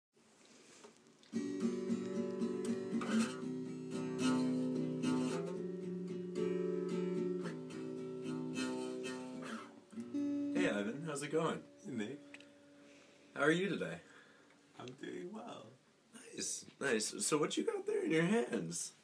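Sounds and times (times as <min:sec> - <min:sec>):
acoustic guitar strumming: 0:01.3 - 0:14.8.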